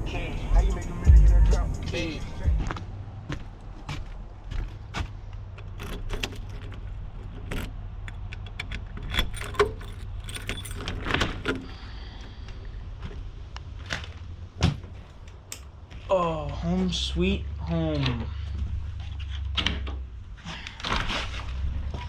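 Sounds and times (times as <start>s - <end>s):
low vehicle rumble: 0.0s - 22.0s
rattling clicks: 5.3s - 14.2s
light metallic jingling: 5.4s - 13.1s.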